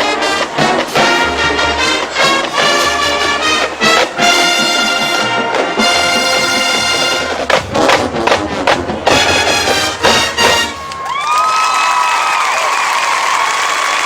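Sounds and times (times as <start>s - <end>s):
marching band brass chords: 0.0s - 11.2s
accented hits with percussion: 0.6s - 11.0s.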